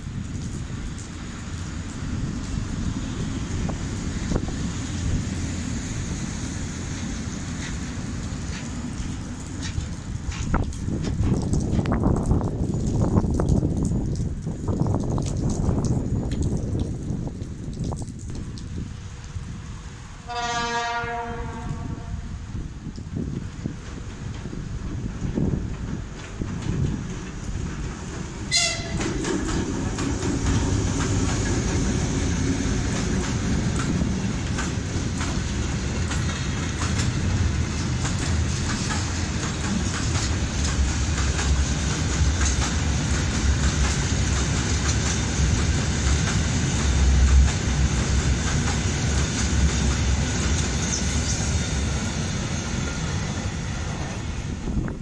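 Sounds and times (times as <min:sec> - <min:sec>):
freight train rolling past: 0:00.0 - 0:13.8, 0:18.7 - 0:55.0
wheels clattering over rail joints: 0:23.8 - 0:52.6.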